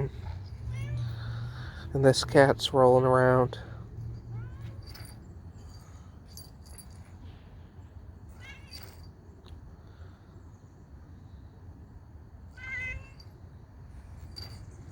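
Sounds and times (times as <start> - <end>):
steady low rumble: 0.0 - 8.1
cat meowing: 0.2 - 1.2, 4.3 - 4.9, 12.6 - 13.2.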